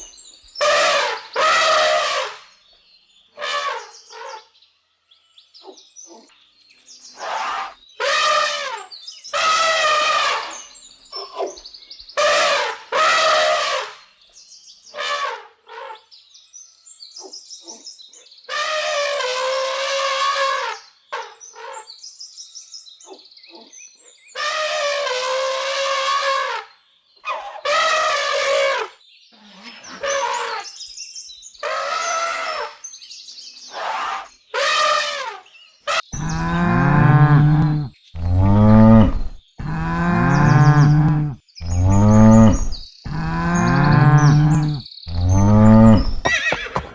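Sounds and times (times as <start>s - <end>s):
loud drawn-out animal calls: 0.6s - 2.5s, 3.4s - 4.5s, 7.2s - 11.5s, 12.2s - 14.0s, 24.4s - 30.7s, 31.6s - 32.8s, 33.7s - 46.9s
faint high bird chirps: 2.4s - 12.2s, 15.9s - 18.5s, 35.4s - 46.5s
cow mooing: 36.2s - 46.3s.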